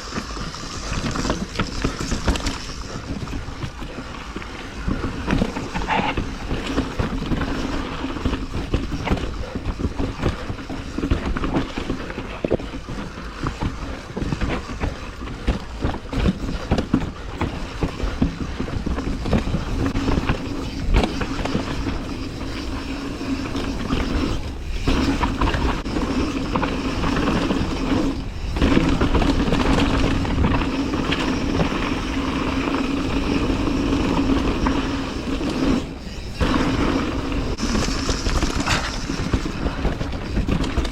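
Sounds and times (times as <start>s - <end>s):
bike knocking and rattling: 0.0s - 22.6s, 37.5s - 40.9s
bike tyre rumble on dirt: 0.0s - 40.9s.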